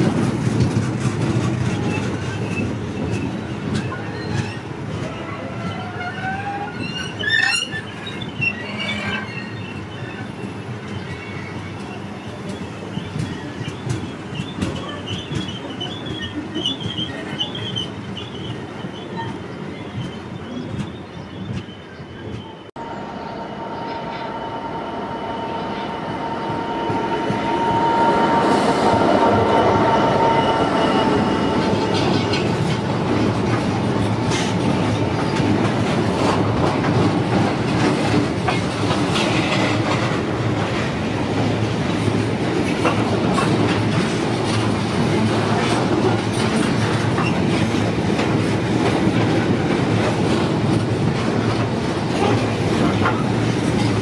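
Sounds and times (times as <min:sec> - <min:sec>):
diesel locomotive whine: 0:20.9 - 0:45.8.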